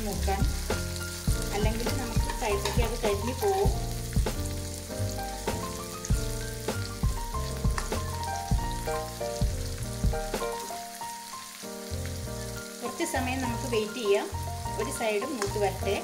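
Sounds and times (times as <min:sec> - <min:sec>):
vegetables sizzling in oil: 0:00.0 - 0:16.0
music with steady beat: 0:00.4 - 0:10.8.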